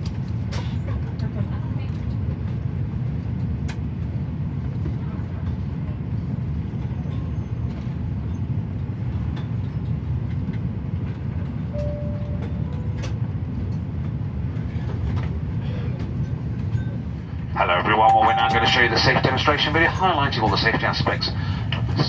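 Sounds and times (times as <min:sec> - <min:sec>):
airliner cabin rumble: 0:00.0 - 0:22.0
faint tone: 0:17.7 - 0:19.9.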